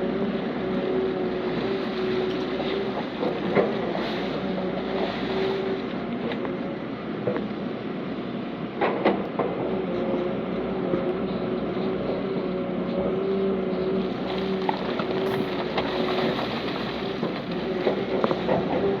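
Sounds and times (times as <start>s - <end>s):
heavy diesel machinery drone: 0.0s - 19.0s
held whine: 9.8s - 19.0s.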